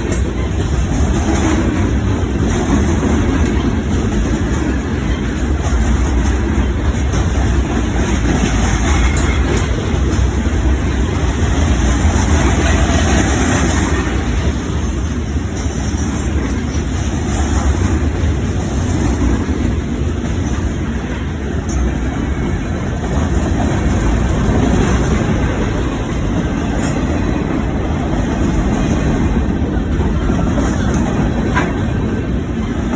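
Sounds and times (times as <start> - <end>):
train rumbling: 0.0 - 32.9.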